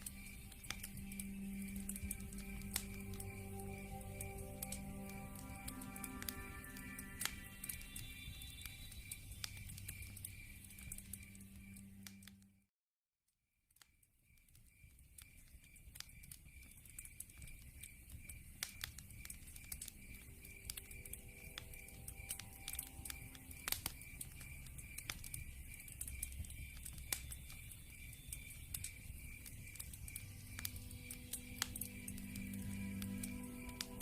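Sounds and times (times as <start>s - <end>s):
pulsed high chirping: 0.0s - 12.0s, 19.9s - 34.0s
wood fire crackling and popping: 0.0s - 12.4s, 14.3s - 34.0s.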